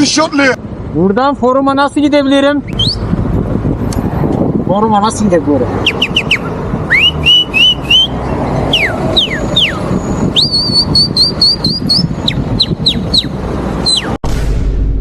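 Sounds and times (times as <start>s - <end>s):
man whistling bird-like phrases: 5.9s - 8.2s.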